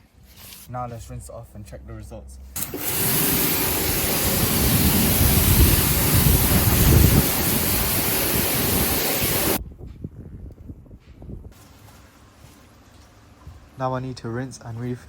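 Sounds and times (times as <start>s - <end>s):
pressure washer spraying water: 2.6s - 9.6s.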